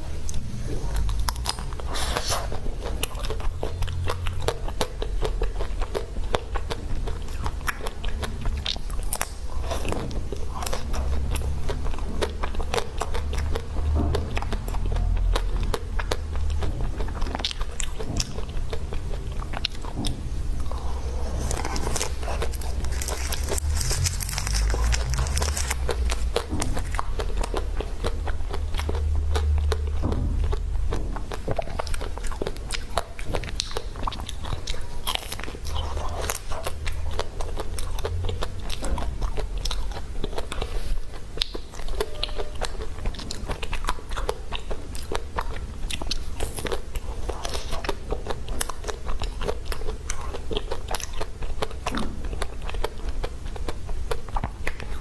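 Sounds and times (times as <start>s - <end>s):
wet chewing: 0.0s - 55.0s
chocolate shell cracking and crunching: 21.4s - 27.4s.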